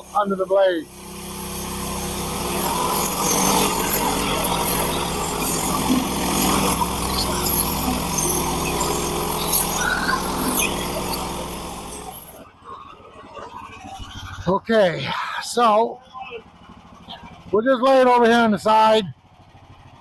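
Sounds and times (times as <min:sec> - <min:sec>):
bandsaw sawmill cutting board: 0:00.0 - 0:12.4.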